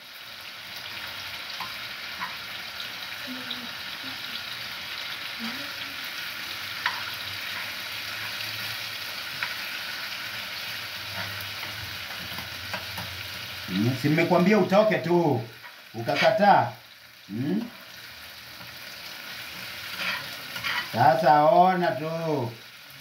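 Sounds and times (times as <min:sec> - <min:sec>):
food sizzling in a pan: 0:00.0 - 0:23.0
metal utensils clinking on pan: 0:06.8 - 0:08.4, 0:19.9 - 0:21.0.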